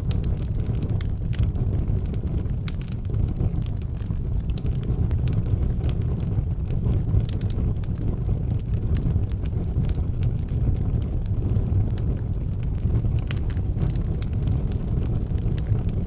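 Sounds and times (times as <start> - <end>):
low rumble of flames: 0.0 - 16.0
wood fire crackling and popping: 0.0 - 16.0.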